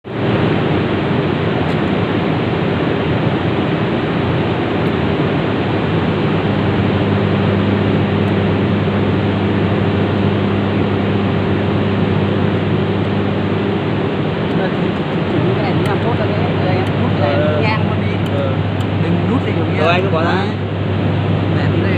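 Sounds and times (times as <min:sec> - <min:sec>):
low constant hum: 0:00.0 - 0:21.9.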